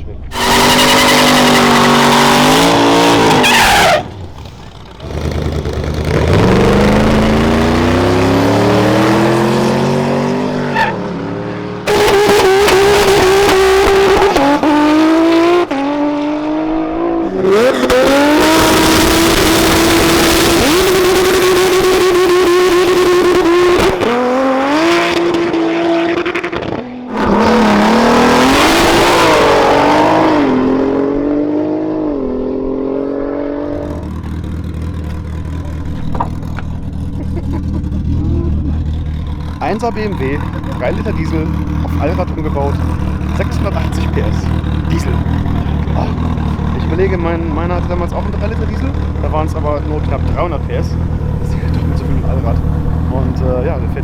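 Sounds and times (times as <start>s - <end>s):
race car engines revving: 0.0s - 54.0s
tyre squeal: 0.3s - 4.7s, 10.6s - 11.1s.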